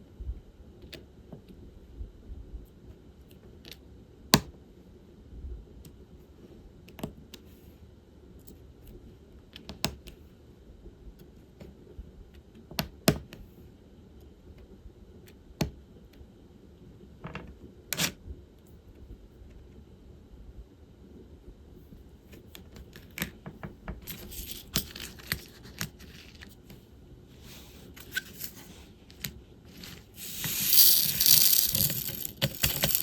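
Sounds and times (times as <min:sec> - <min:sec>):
resin drills rattling: 0:29.8 - 0:33.0.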